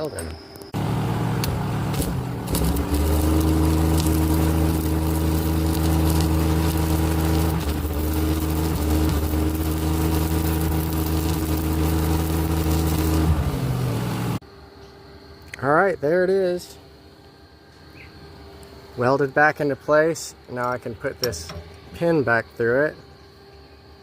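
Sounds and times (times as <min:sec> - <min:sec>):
welder engine running: 0:00.0 - 0:14.4
crackling hiss of arc welding: 0:01.1 - 0:14.4.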